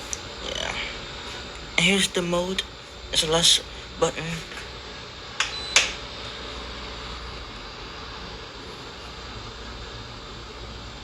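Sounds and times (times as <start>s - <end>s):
air cooler fan blowing: 0.0s - 11.0s
control panel clicks: 5.4s - 6.0s.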